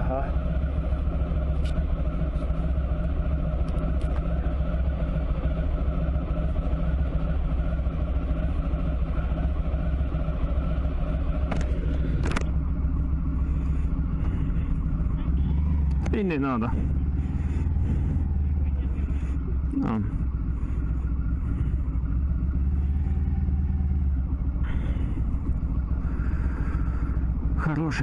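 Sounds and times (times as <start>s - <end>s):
motorcycle engine and road noise: 0.0s - 28.0s.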